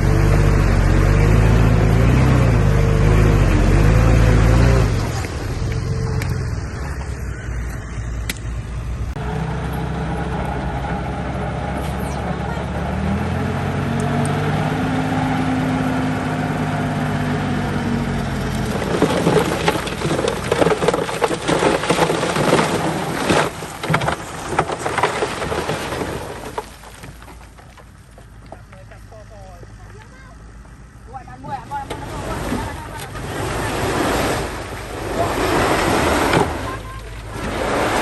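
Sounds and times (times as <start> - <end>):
bulldozer diesel engine: 0.0 - 38.0
knocks and clatter: 18.5 - 29.1.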